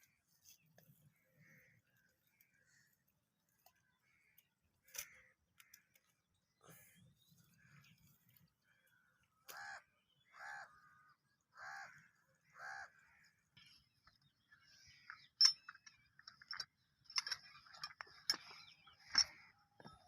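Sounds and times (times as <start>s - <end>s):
small birds chirping: 0.0s - 20.0s
crow cawing: 4.0s - 6.1s, 8.7s - 13.4s.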